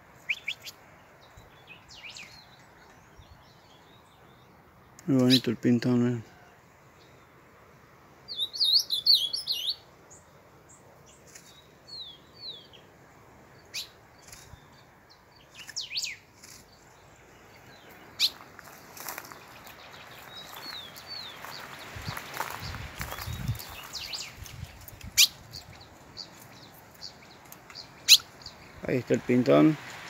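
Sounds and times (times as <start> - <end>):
small songbird chirping: 0.1 - 7.4, 8.2 - 30.0
brush rustling: 15.5 - 30.0.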